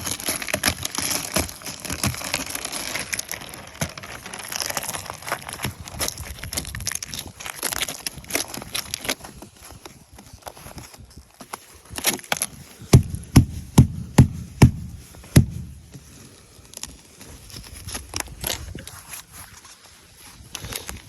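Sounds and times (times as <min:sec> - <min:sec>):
ice clicking and scraping: 0:00.0 - 0:13.8, 0:14.5 - 0:21.0
ice being struck: 0:13.0 - 0:16.0.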